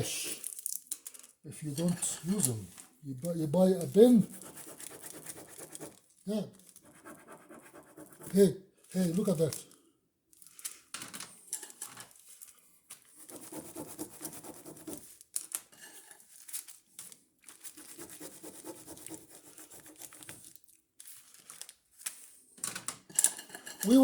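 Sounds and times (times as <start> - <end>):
pen scribbling on paper: 4.2 - 6.0, 6.8 - 8.4, 13.2 - 15.1, 17.8 - 20.4.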